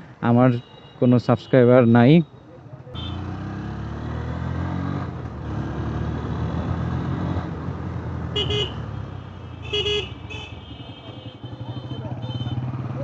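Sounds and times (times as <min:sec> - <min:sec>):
horn toots: 0:08.3 - 0:13.0
motorcycle engine running: 0:10.2 - 0:13.0.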